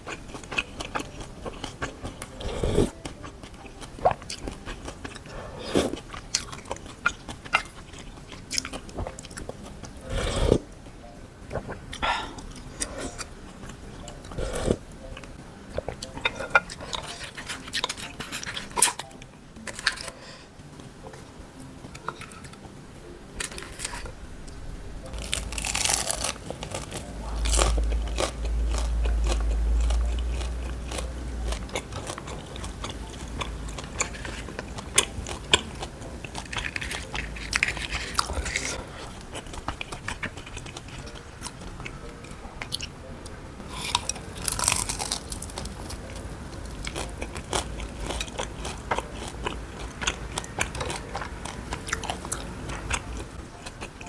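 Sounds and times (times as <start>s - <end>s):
chewing and crunching fried food: 0.0s - 10.7s, 11.4s - 54.0s
wet mouth sounds: 0.0s - 10.7s, 11.5s - 14.8s.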